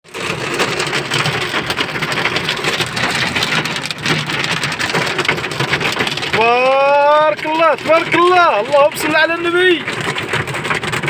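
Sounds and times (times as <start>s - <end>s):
rain falling: 0.1s - 11.0s.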